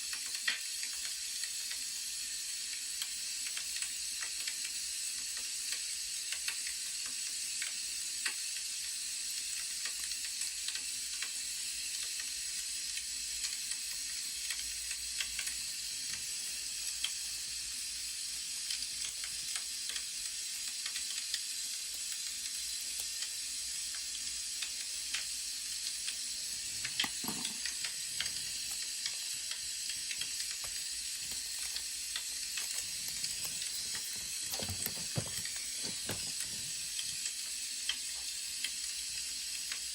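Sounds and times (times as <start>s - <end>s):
firewood crackling: 26.4s - 37.3s.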